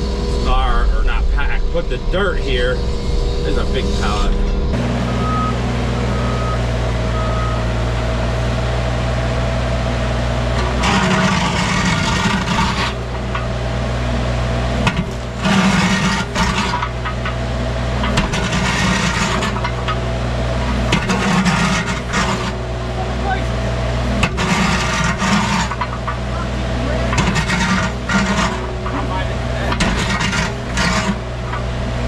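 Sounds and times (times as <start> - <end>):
excavator engine running: 0.0 - 32.0
bucket scraping and crunching debris: 10.5 - 32.0.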